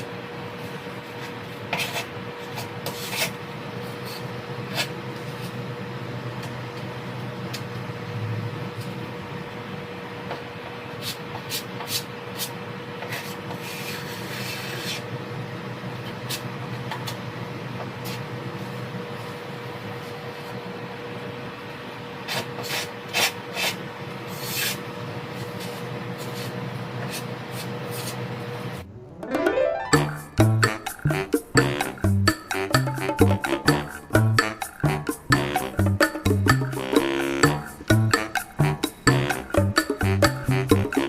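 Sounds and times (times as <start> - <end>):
faint hum: 28.8 - 30.6.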